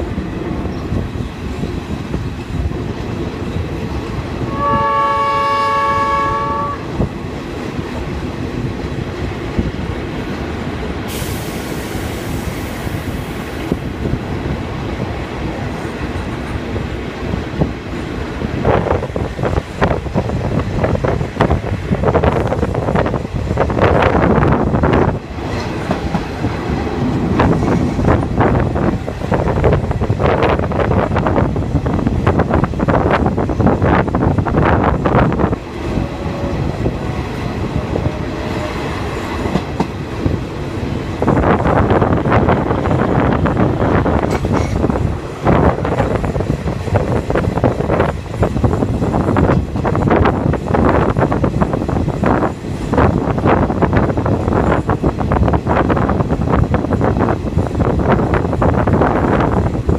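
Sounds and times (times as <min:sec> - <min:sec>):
train carriage rumbling: 0:00.0 - 0:59.9
train horn chord: 0:04.5 - 0:06.9
brief hiss: 0:11.1 - 0:13.0.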